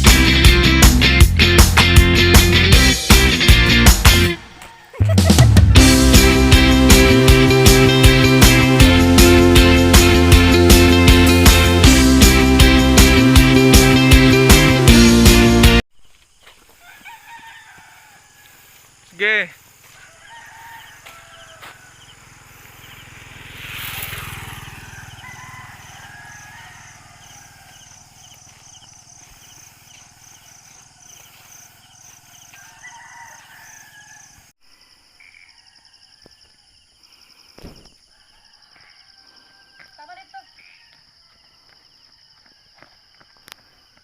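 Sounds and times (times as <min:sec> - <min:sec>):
distant roosters crowing: 0:04.3 - 0:05.2, 0:16.6 - 0:34.6, 0:35.2 - 0:37.0, 0:37.6 - 0:44.0
insects chirping: 0:15.9 - 0:44.0.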